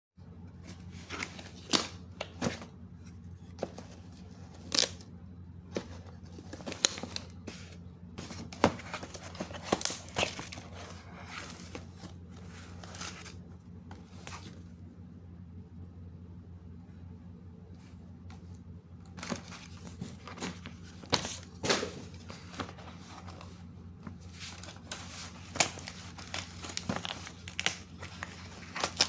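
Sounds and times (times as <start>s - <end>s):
steady low hum: 0.2s - 29.0s
packaging rustling and tearing: 3.6s - 5.0s, 5.8s - 13.4s, 19.2s - 29.0s.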